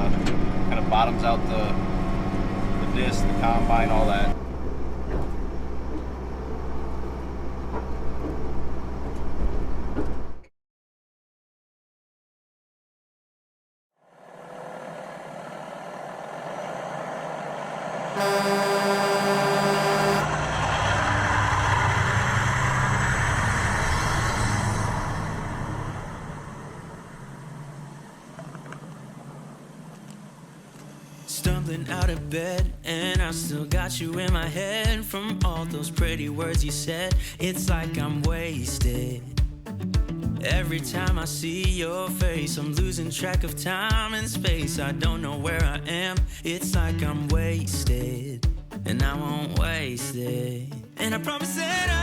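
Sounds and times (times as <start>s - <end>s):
tractor diesel engine running: 14.2s - 23.8s.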